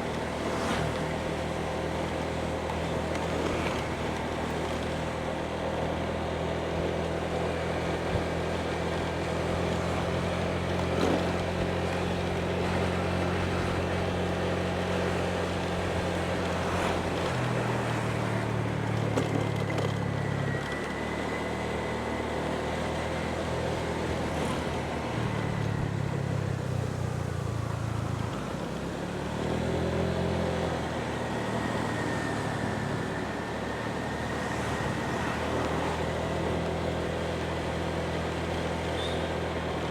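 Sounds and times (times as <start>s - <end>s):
motorbike engine: 0.0s - 26.5s.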